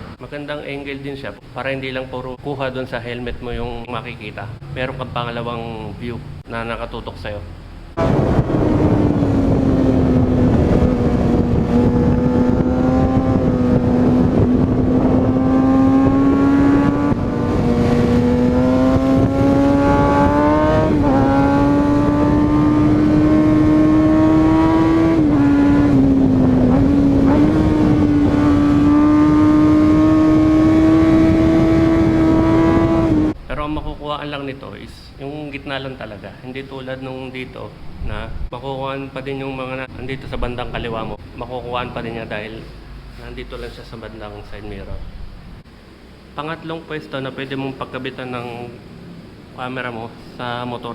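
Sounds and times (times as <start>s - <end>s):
motorcycle engine at high revs: 8.0s - 33.4s
wind rushing: 8.0s - 33.8s.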